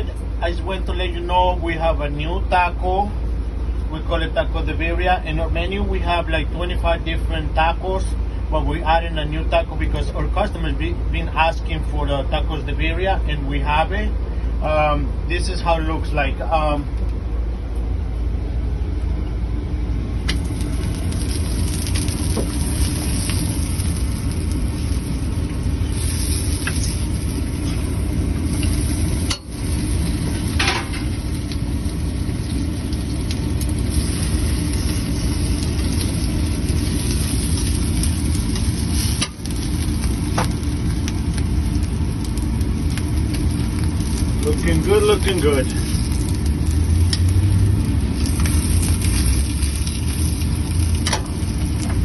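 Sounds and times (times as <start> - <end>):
low mechanical drone: 0.0 - 52.0
food sizzling on a griddle: 20.3 - 52.0.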